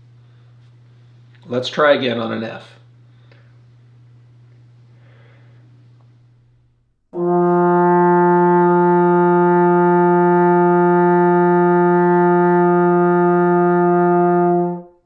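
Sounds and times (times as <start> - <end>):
trombone holding a long note: 7.2 - 15.0.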